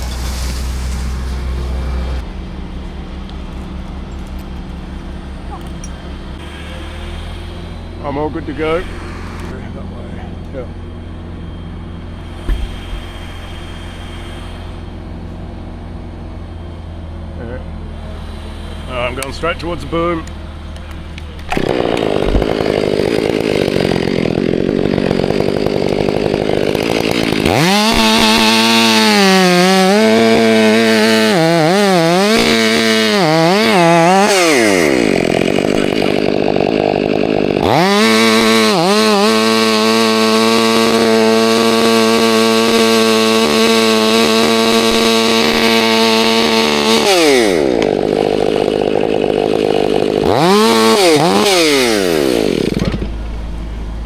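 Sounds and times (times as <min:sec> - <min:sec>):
chainsaw cutting wood: 0:00.0 - 0:02.2, 0:21.2 - 0:53.2.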